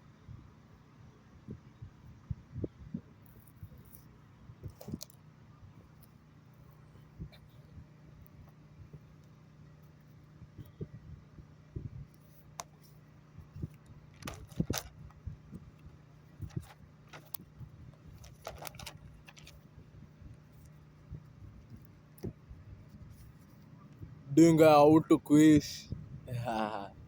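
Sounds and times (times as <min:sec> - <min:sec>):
steady low hum: 0:00.0 - 0:27.0
light clicks and rattles: 0:03.2 - 0:05.2, 0:12.0 - 0:24.1.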